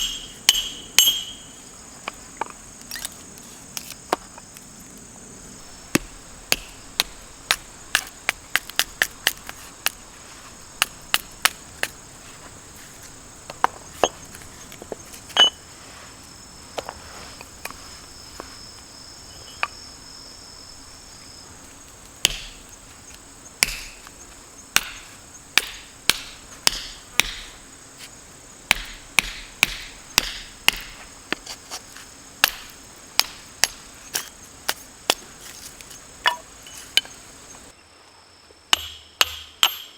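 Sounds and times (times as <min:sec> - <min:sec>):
insects chirring: 0:00.0 - 0:39.9
sharp knocks or cracks: 0:23.6 - 0:24.1, 0:24.8 - 0:27.6, 0:28.7 - 0:31.0.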